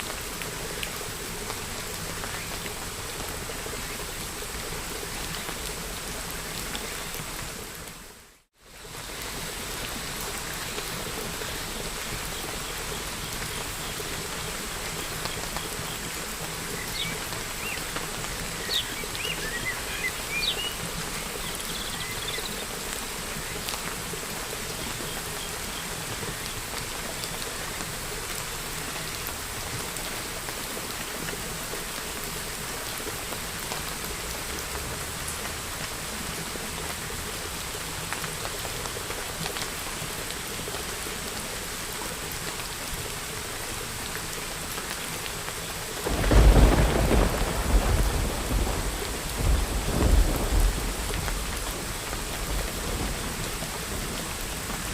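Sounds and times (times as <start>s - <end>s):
steady rain falling: 0.0s - 54.9s
thunder rumbling: 46.0s - 54.2s.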